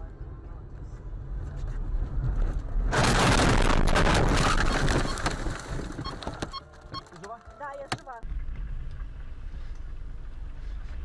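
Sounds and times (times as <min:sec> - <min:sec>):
road and engine rumble: 0:00.0 - 0:11.0
vehicle crash: 0:02.0 - 0:06.9.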